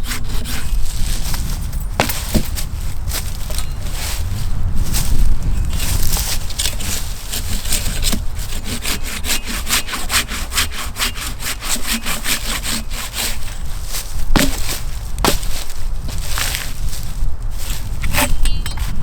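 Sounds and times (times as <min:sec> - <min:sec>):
hand saw cutting wood: 0:00.0 - 0:02.7, 0:05.7 - 0:16.7, 0:17.7 - 0:18.4
sharp knocks: 0:14.4 - 0:15.6.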